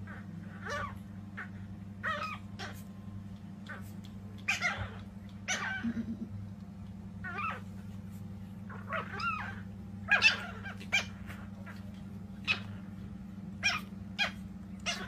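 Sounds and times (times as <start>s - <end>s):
puppies squeaky cries: 0.0s - 2.9s, 3.6s - 6.0s, 7.2s - 7.7s, 8.7s - 12.8s, 13.6s - 15.0s.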